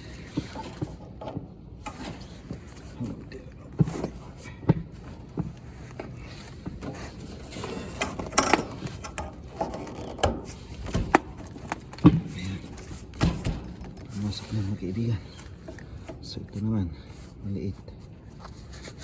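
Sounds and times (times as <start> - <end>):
tools clicking and knocking: 0.0 - 2.6, 6.6 - 14.6
scraping and rustling: 0.0 - 19.0.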